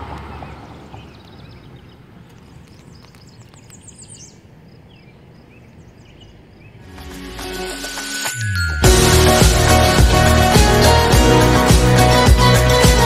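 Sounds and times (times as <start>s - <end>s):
songbirds chirping: 0.0s - 7.1s.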